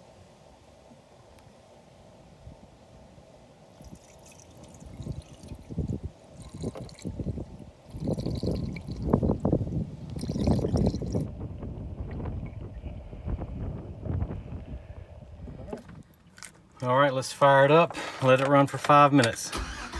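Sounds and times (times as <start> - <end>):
liquid glugging and trickling: 3.7 - 11.3.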